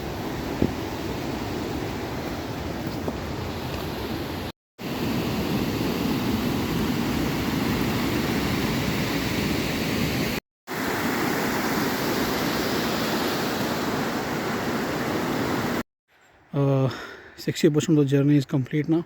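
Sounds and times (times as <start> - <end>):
waterfall rushing: 10.1 - 15.8.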